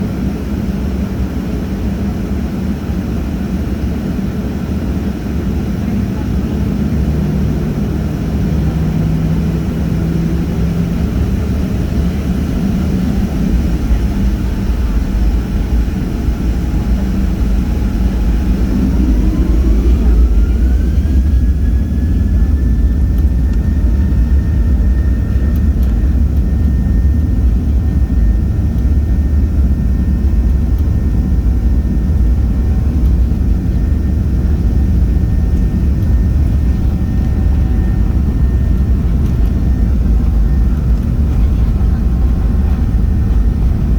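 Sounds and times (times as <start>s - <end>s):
jet engines rumbling: 0.0s - 43.9s
engine whine rising in pitch: 6.6s - 43.9s.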